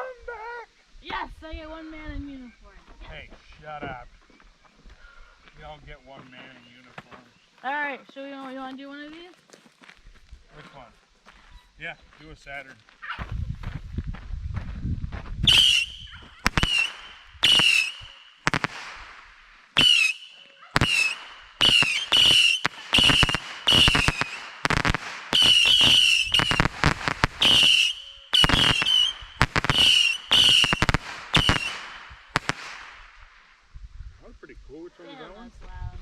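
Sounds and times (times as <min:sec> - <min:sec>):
whistling rockets: 0:15.4 - 0:33.5
firework pops and cracks: 0:15.5 - 0:33.6.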